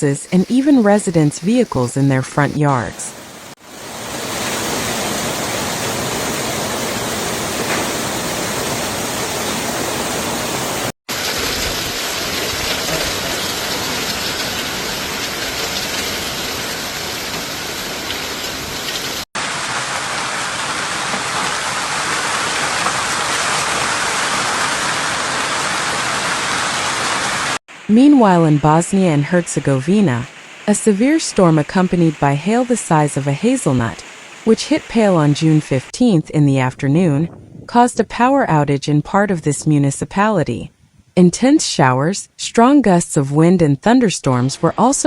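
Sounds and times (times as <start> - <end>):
hail and rain pelting down: 3.8 - 28.0.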